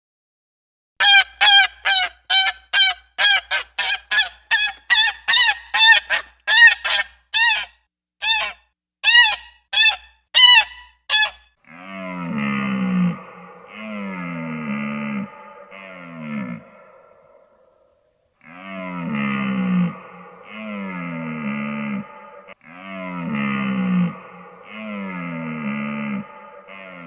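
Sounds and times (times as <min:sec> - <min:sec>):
animal long wavering call: 0:11.7 - 0:17.8, 0:18.4 - 0:27.0
goose honking: 0:12.3 - 0:17.4, 0:18.5 - 0:27.0.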